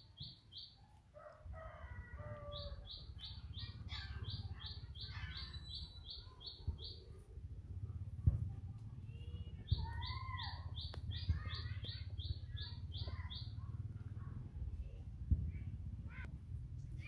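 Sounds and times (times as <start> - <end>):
birds slurred calls: 0.0 - 7.2, 9.3 - 14.2
low rumble: 13.6 - 17.0.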